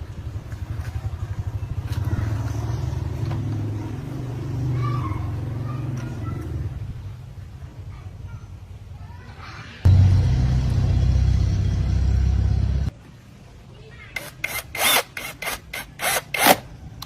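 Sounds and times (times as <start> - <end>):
engine running with rapid pulse: 9.9 - 12.9.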